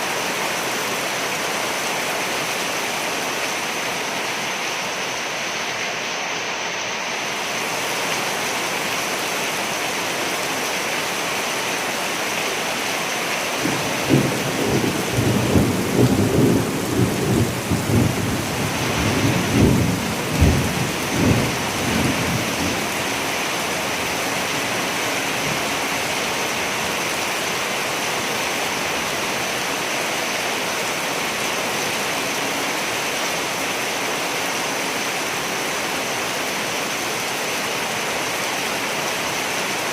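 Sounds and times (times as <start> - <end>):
heavy rain: 0.0 - 39.9
thunder rumbling: 13.6 - 23.0.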